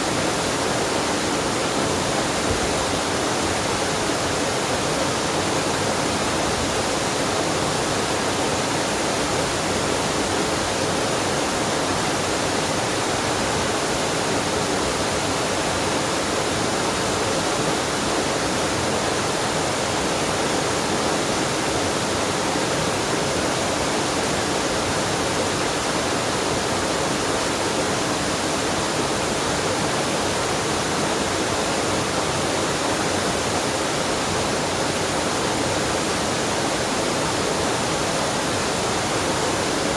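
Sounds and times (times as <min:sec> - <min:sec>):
waterfall and stream rushing: 0:00.0 - 0:39.9.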